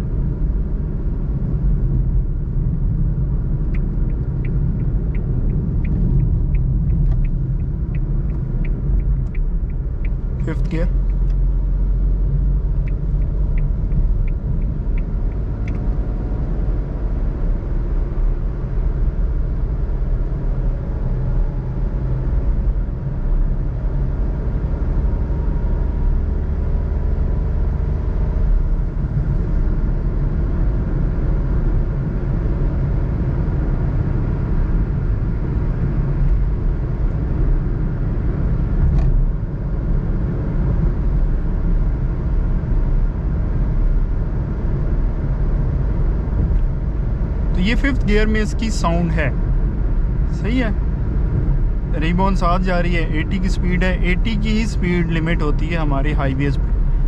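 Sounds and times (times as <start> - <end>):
tyre and road noise: 0.0 - 17.2
car engine drone in cabin: 0.0 - 57.0
light ticks: 3.6 - 11.4, 12.8 - 15.9.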